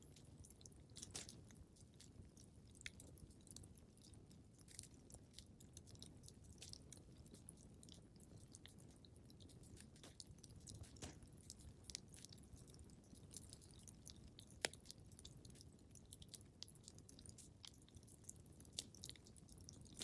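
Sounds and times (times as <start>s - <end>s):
wood fire crackling: 0.0s - 15.7s.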